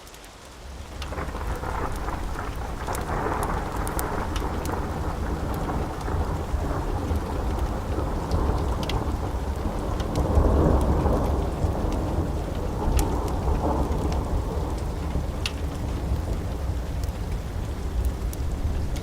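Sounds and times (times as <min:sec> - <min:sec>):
steady rain: 0:00.0 - 0:19.0
wood fire crackling and popping: 0:00.0 - 0:19.0
low rolling thunder: 0:00.7 - 0:19.0.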